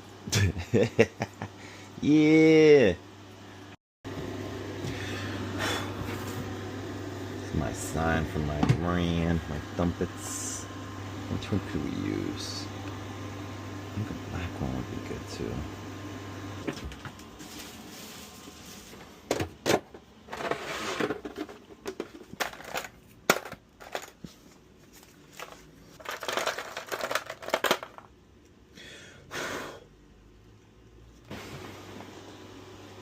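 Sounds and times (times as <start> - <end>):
rustling or crinkling: 16.8 - 19.2, 20.3 - 28.0
objects clicking and knocking: 19.3 - 24.3, 25.4 - 28.1.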